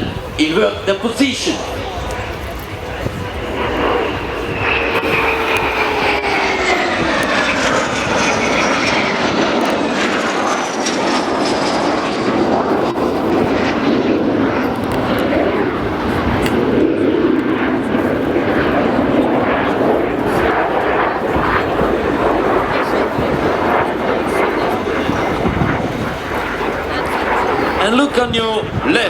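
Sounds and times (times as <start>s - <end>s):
jet engine whine: 0.0s - 29.0s
rushing jet noise: 0.0s - 29.0s.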